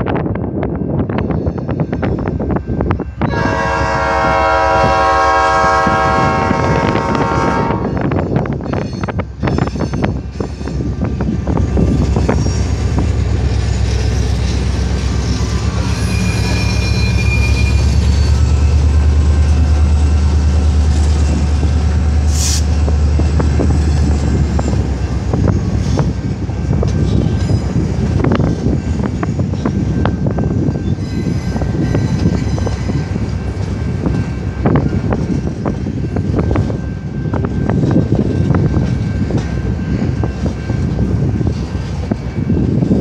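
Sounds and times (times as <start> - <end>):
diesel locomotive droning: 0.0 - 43.0
high squeal: 12.1 - 19.0
sharp hiss: 22.3 - 22.7.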